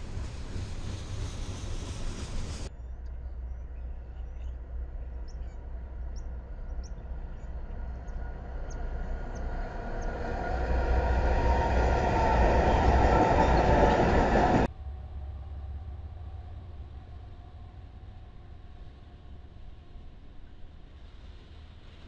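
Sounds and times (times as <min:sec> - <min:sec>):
train wheel noise: 0:00.0 - 0:02.7, 0:05.8 - 0:19.0
locomotive engine rumble: 0:00.0 - 0:22.0.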